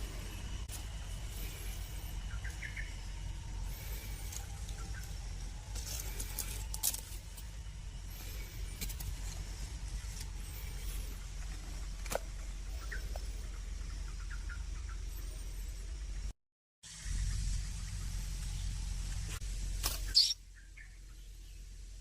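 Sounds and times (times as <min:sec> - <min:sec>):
low rumble: 0:00.0 - 0:16.3
baby bird chirping: 0:20.0 - 0:20.4.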